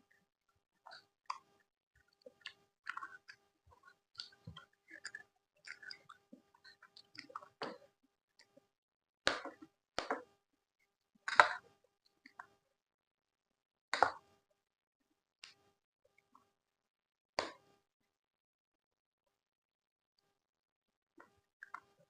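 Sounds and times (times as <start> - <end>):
chewing and mouth sounds: 2.2 - 7.8.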